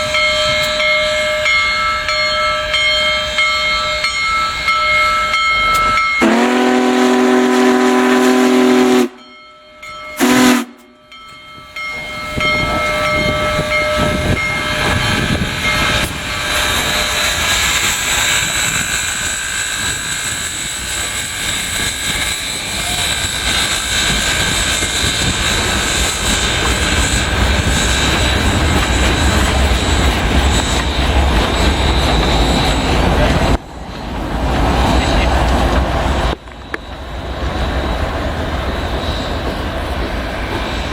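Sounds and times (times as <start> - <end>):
train rushing and hissing past: 0.0 - 40.9
steam locomotive whistle: 5.7 - 9.4, 10.2 - 11.0, 13.4 - 33.1.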